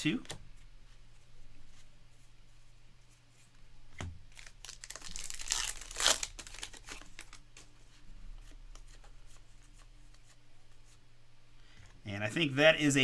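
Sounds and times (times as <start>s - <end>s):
wrapper tearing and crinkling: 4.4s - 7.4s.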